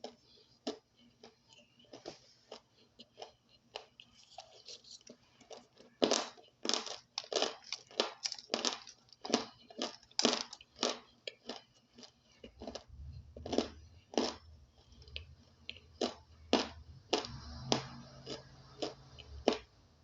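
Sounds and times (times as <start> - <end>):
crunchy chewing: 0.0 - 19.7.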